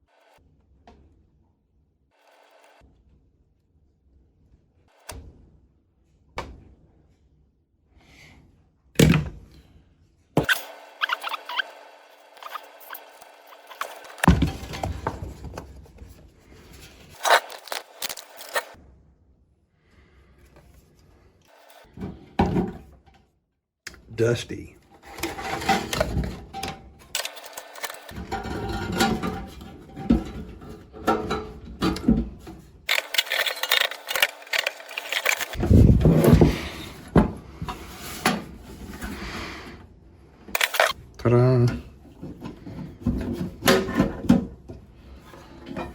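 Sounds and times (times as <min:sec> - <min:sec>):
scraping: 0:10.4 - 0:18.8, 0:27.1 - 0:29.9, 0:32.9 - 0:37.0
small clicks and rattles: 0:27.1 - 0:28.2, 0:32.9 - 0:35.6.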